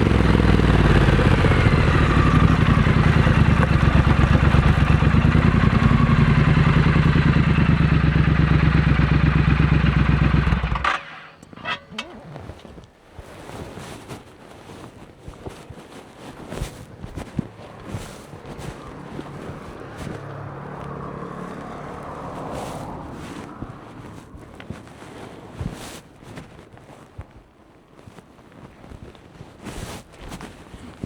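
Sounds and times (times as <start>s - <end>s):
motorcycle engine idling: 0.0s - 12.8s, 17.5s - 24.9s.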